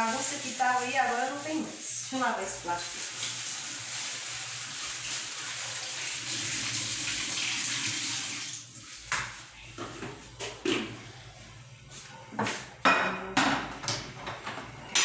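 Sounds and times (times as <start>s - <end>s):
tap water running: 0.0s - 10.9s.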